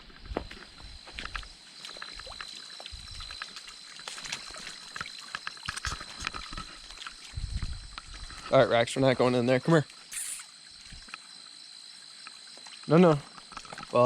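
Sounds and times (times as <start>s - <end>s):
stream water trickling: 0.0s - 14.0s
short splashes and knocks: 1.2s - 8.6s.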